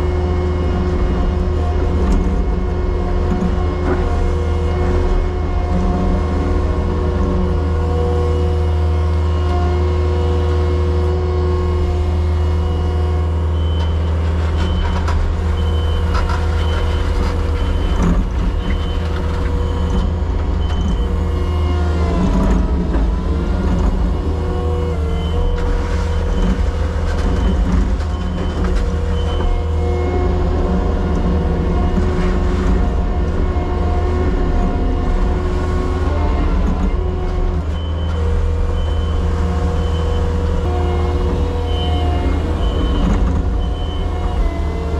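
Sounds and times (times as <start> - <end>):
diesel excavator engine running: 0.0 - 44.9
backup alarm beeping: 37.7 - 44.4.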